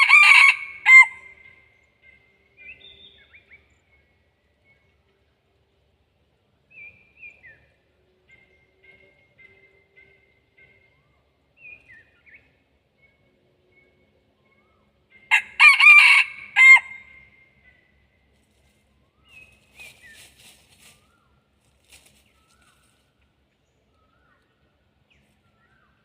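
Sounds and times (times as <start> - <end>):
rooster crowing: 0.0 - 1.3, 15.3 - 17.1.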